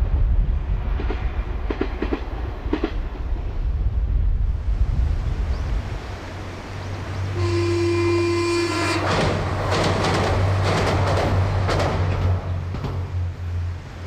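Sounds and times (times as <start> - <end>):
train clattering across steel bridge: 0.6 - 3.6, 5.9 - 14.0
train horn blast: 7.2 - 9.8.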